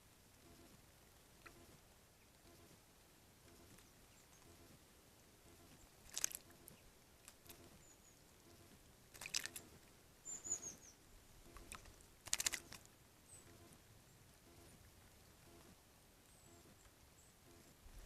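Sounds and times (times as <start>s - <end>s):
birds splashing in water: 5.4s - 7.8s, 8.4s - 10.7s, 11.4s - 13.7s
high bird chirps: 10.2s - 12.6s.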